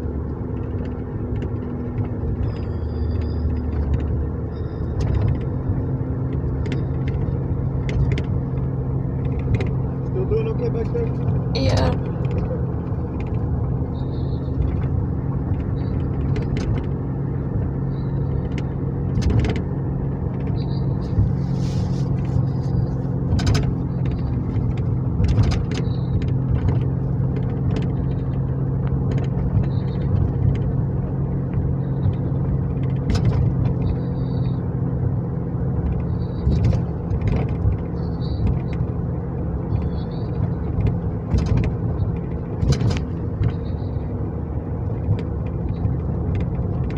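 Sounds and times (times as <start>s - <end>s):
car engine and road drone: 0.0s - 46.9s.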